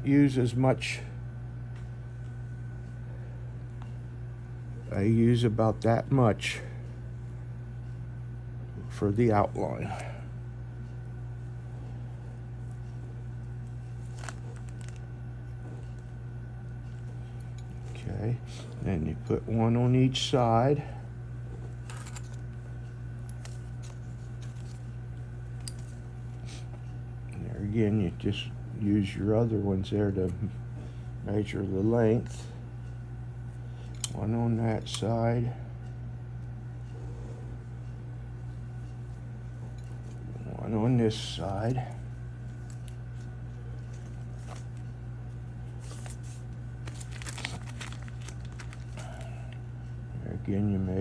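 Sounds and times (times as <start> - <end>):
steady low hum: 0.0 - 51.0
faint clicks of handling materials: 10.7 - 18.9, 21.3 - 27.4, 35.8 - 50.0.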